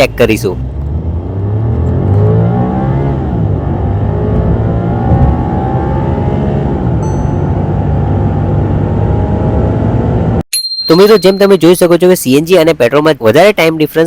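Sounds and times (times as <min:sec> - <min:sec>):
car engine accelerating: 0:00.4 - 0:10.4.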